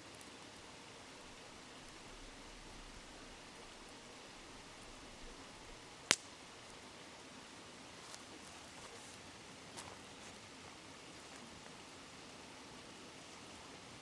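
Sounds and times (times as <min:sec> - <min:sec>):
campfire crackling: 0:00.0 - 0:14.0
sharp crackling pop: 0:06.0 - 0:06.6.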